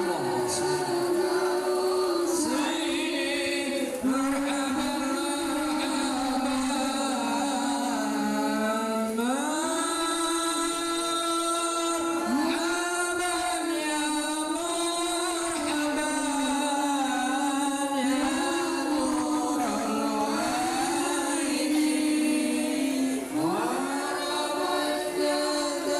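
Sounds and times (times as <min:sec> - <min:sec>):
devotional chanting singing: 0:00.0 - 0:25.9.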